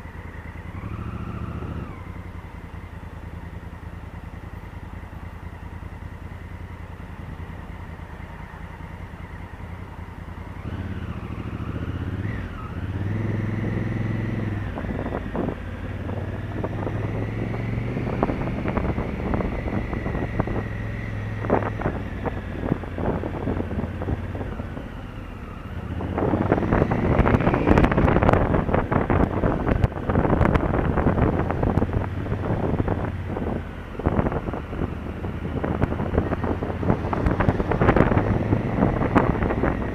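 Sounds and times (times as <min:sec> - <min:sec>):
motorcycle engine running: 0:00.0 - 0:39.9
wind buffeting microphone: 0:10.6 - 0:25.0, 0:25.7 - 0:39.9.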